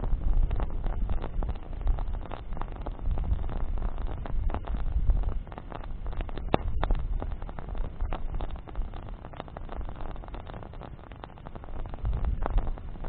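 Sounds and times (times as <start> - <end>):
bonfire crackles and pops: 0.0 - 13.0
bonfire low rumble: 0.0 - 13.0.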